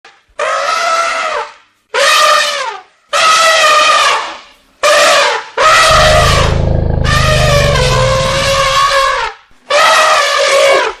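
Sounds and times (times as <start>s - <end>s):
elephant trumpeting: 5.6s - 10.9s
deep low rumble: 5.8s - 9.1s.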